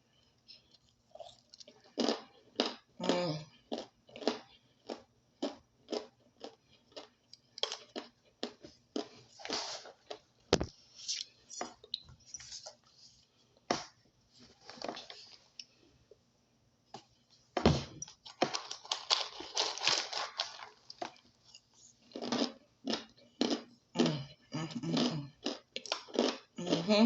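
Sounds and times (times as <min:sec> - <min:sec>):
crunchy food being chewed: 0:00.5 - 0:10.3, 0:18.2 - 0:26.9.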